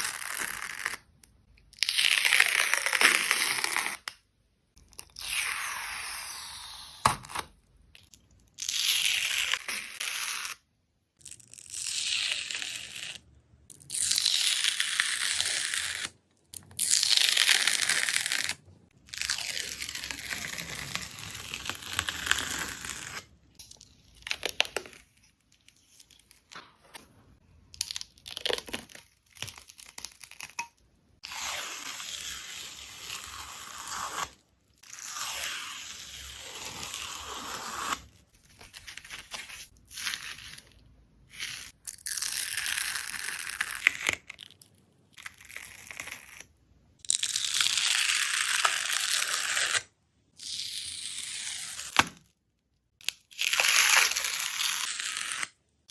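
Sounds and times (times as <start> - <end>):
film peeling and tearing: 16.8 - 23.3.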